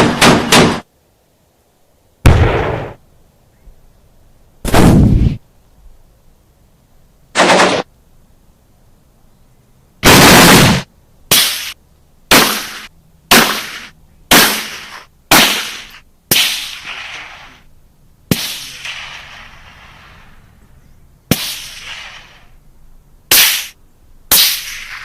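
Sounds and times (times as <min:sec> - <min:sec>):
gunfire bursts: 0:00.0 - 0:00.8, 0:02.2 - 0:03.0, 0:07.4 - 0:07.9, 0:10.0 - 0:17.5
single gunshots with echo: 0:02.2 - 0:03.0.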